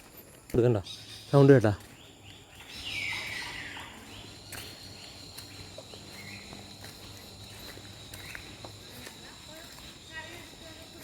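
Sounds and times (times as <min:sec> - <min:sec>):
faint chirps: 0:00.0 - 0:11.0
high-pitched insect drone: 0:02.9 - 0:11.0
light footstep clicks: 0:04.4 - 0:10.6.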